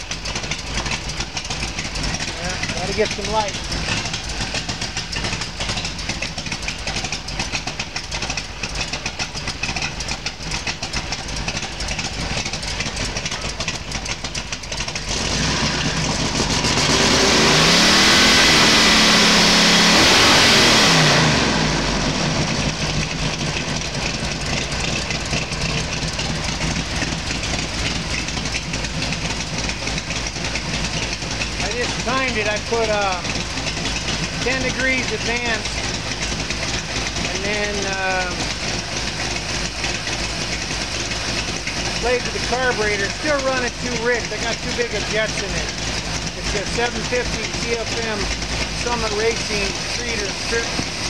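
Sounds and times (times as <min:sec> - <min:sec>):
car engine idling and revving: 0:00.0 - 0:51.0.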